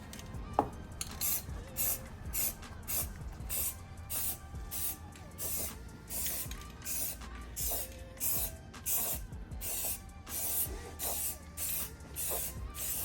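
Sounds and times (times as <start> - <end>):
spray paint can hissing: 0.1 - 13.0.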